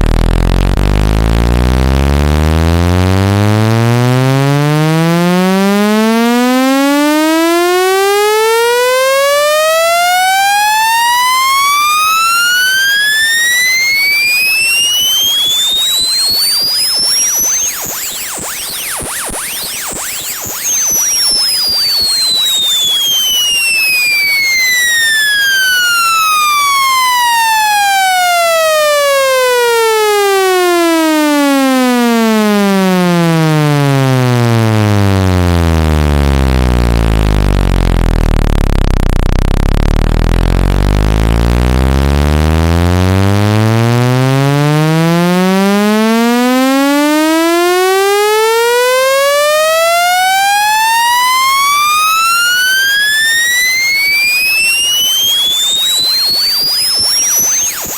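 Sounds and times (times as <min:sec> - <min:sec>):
electronic tone sweeping in pitch: 0:00.0 - 0:57.9.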